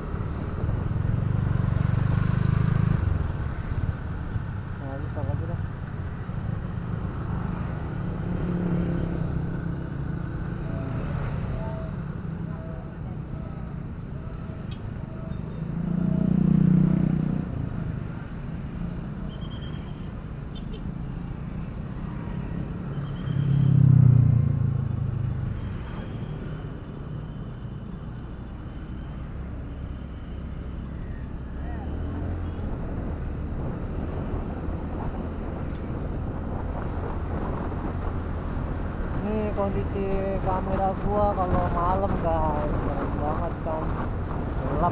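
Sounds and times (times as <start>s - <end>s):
passing engine: 0.0s - 18.8s, 21.2s - 27.4s
road noise: 0.0s - 44.9s.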